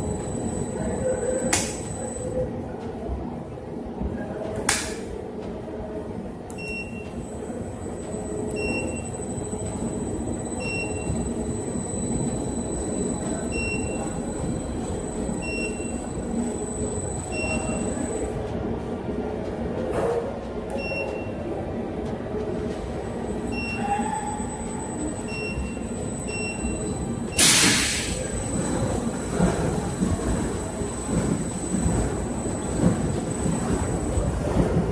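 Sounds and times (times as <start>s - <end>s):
short electronic beeps: 10.4s - 14.2s, 15.3s - 18.2s, 23.5s - 23.9s, 24.9s - 27.6s.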